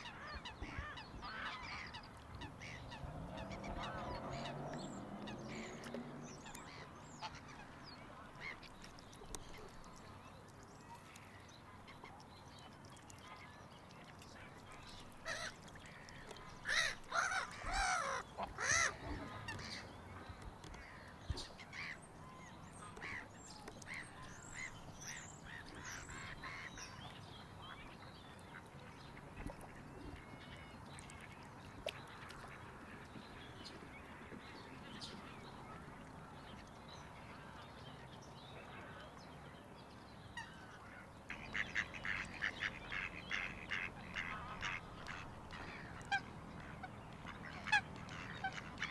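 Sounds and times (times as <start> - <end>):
waterfowl calling: 0.0 - 7.8, 15.0 - 36.7, 40.4 - 48.9.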